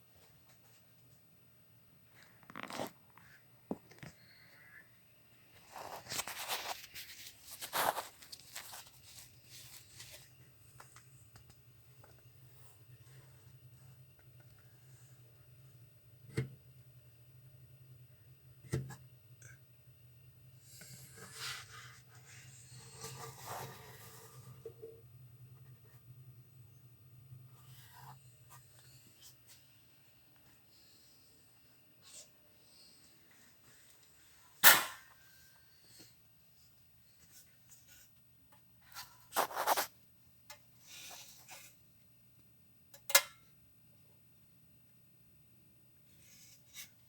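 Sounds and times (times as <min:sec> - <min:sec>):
scraping and rubbing: 0:05.6 - 0:10.2, 0:39.3 - 0:39.9.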